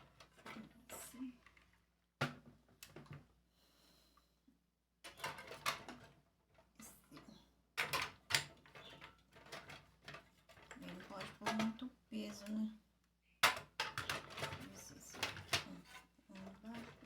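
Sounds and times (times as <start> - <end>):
small items clicking on shelves: 5.0 - 12.7, 13.4 - 17.0.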